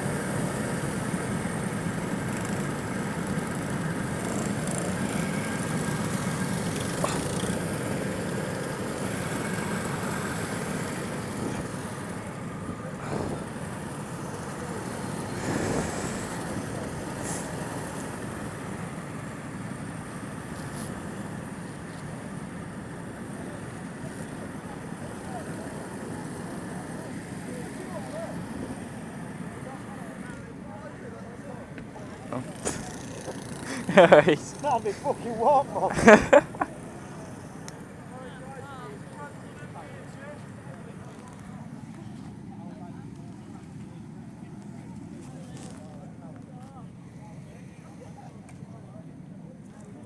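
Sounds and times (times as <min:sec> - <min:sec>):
go-kart engine running: 0:00.0 - 0:46.0.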